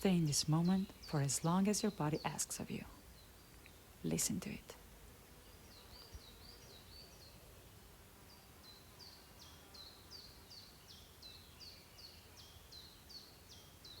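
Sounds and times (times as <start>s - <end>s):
quiet background hiss: 0.0s - 14.0s
small bird chirping: 5.4s - 7.5s.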